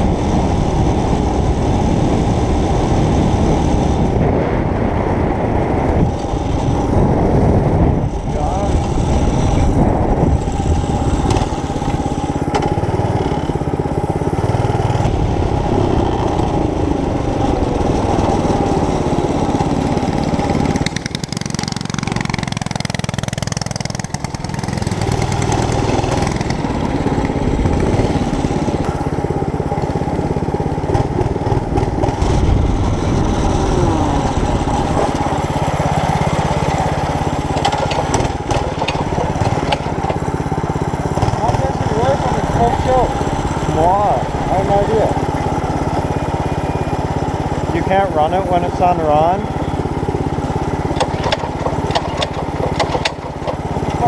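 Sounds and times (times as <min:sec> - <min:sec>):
mini bike engine revving: 0:00.0 - 0:54.0.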